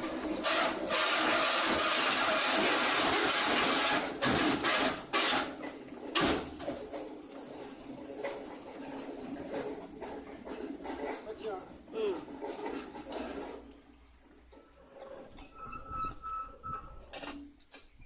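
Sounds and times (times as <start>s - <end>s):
sharp bursts of machine noise: 0.4s - 5.6s.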